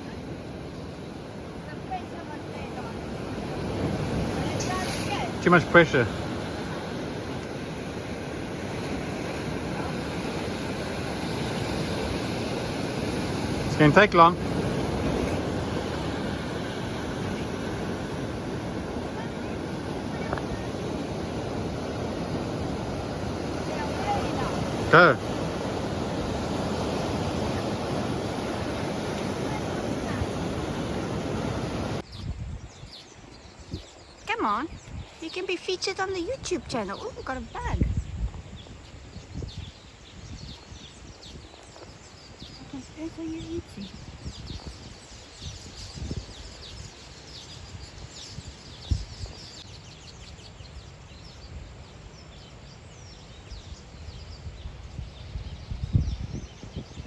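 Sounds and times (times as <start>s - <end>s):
ocean surf: 0.0s - 32.1s
birds chirping: 0.0s - 57.0s
wind: 0.0s - 57.0s.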